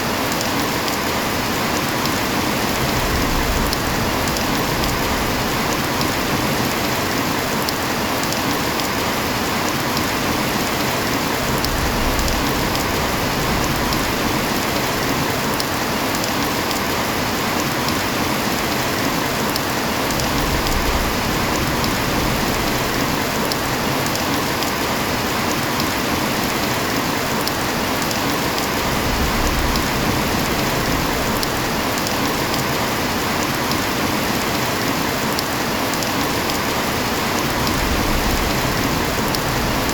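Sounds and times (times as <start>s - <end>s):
heavy rain hissing: 0.0s - 39.9s
raindrop taps: 3.3s - 7.0s, 11.4s - 14.9s, 29.6s - 34.5s.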